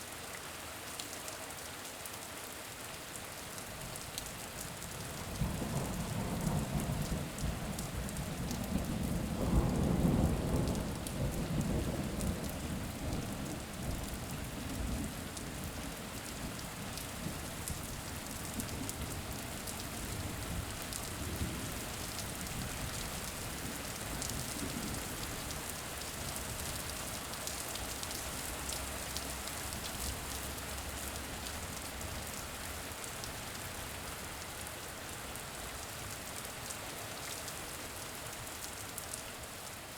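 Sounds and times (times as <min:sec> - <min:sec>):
steady rain: 0:00.0 - 0:39.9
low rumble of thunder: 0:05.2 - 0:32.3.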